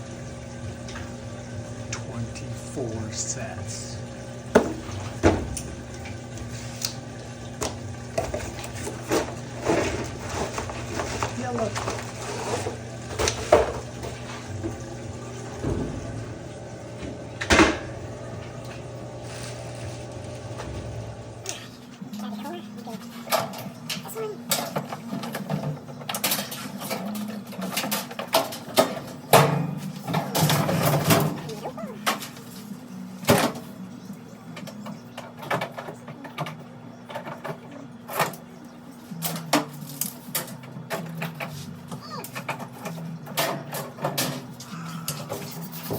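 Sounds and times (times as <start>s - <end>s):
steady low hum: 0.0s - 26.2s.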